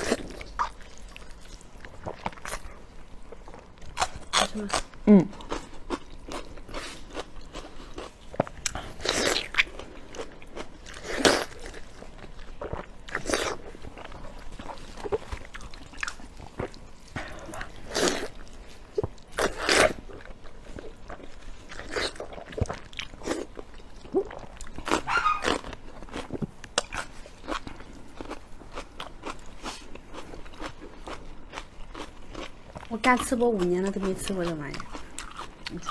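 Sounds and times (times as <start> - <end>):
person biting and chewing: 3.4 - 20.5, 21.2 - 32.6.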